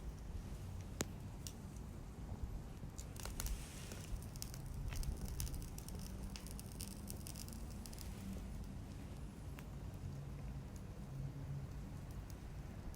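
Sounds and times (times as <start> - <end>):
bonfire crackling: 0.1 - 11.0
sharp pops and snaps: 0.8 - 1.9, 2.8 - 10.0.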